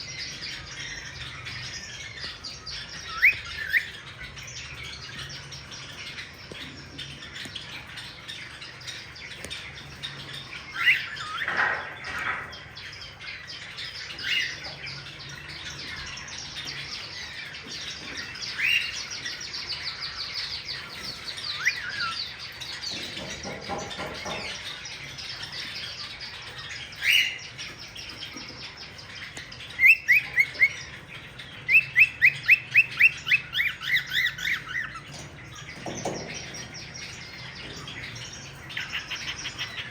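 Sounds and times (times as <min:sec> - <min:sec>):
background chatter of many birds: 0:00.0 - 0:39.9
cockatiels chirping: 0:00.0 - 0:39.9
bird rapid repeated chirps: 0:12.5 - 0:39.9.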